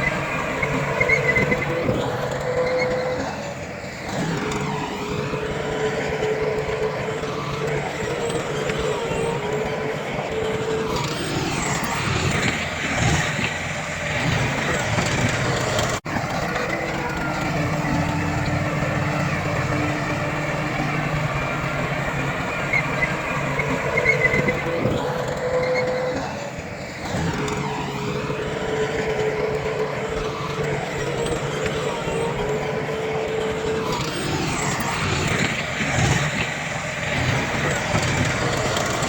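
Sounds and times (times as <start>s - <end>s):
heavy diesel machinery running: 0.0s - 39.0s
mechanical whine: 0.0s - 39.0s.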